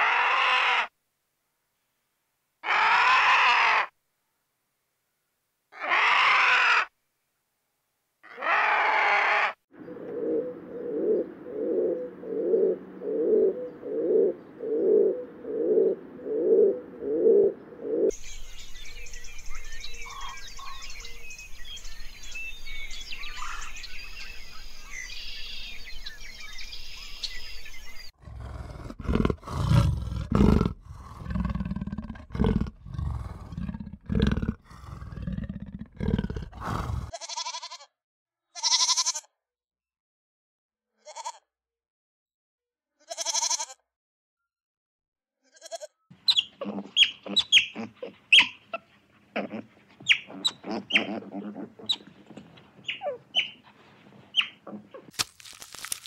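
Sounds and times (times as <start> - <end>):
bird chirps chorus: 17.6 - 28.2, 46.1 - 55.1
deep irregular grunts: 28.2 - 37.1, 49.2 - 52.8
rhythmic mid-pitched animal calls: 45.7 - 55.1.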